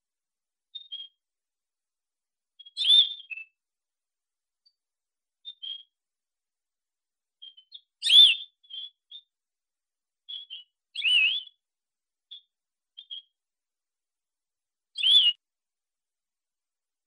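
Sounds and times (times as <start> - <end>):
finch calling: 7.4 - 9.0.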